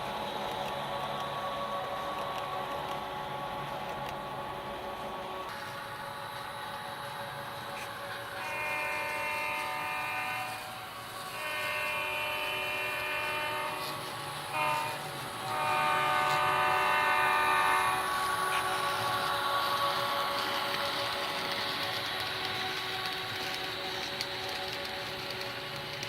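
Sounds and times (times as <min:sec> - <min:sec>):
diesel air horn blasts: 0:08.4 - 0:18.4.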